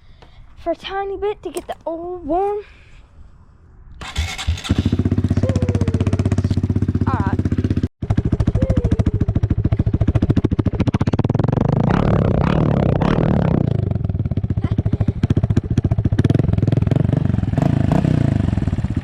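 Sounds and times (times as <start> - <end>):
dirt bike engine running: 4.0 - 19.0.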